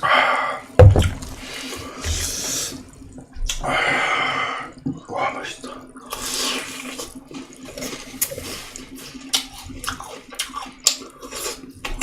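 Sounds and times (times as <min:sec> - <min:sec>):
person chewing wetly: 0:05.0 - 0:12.0.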